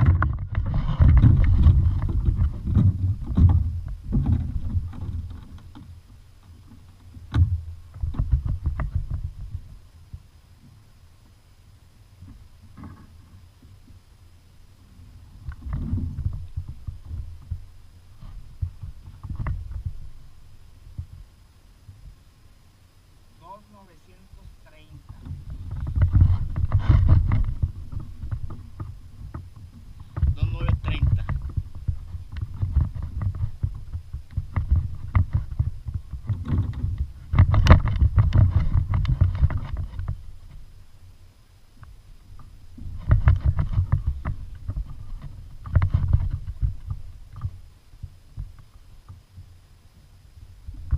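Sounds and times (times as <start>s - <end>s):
thumps against a kayak hull: 0.0s - 6.0s, 6.7s - 10.2s, 25.1s - 40.6s, 42.4s - 48.6s
low water rumbling: 0.0s - 50.9s.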